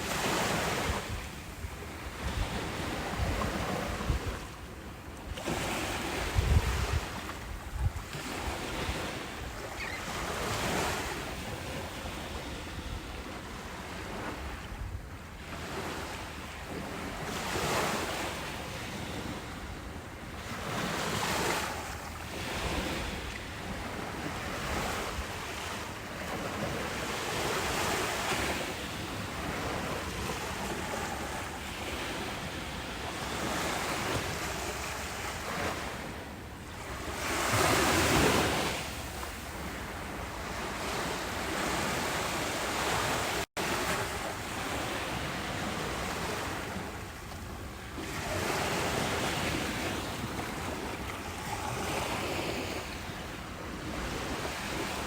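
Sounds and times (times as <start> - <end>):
wind on microphone: 0.0 - 4.6, 5.2 - 15.7
ocean waves breaking on beach: 0.0 - 55.0.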